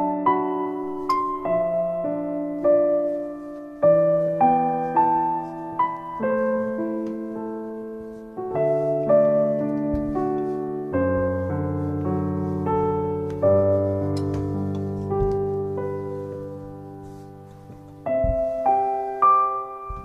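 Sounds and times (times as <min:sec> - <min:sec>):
gentle solo piano: 0:00.0 - 0:20.0.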